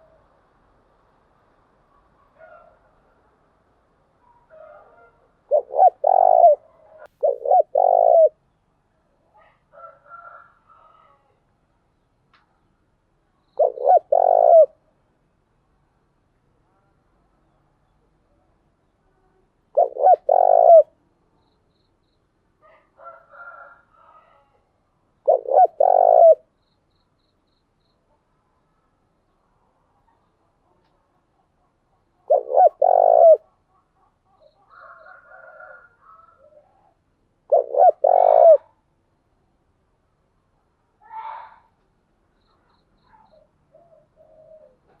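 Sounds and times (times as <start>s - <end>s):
dove cooing: 4.5s - 8.4s, 13.6s - 14.8s, 19.8s - 21.0s, 25.2s - 26.5s, 32.2s - 33.6s, 34.7s - 38.8s, 43.1s - 45.0s.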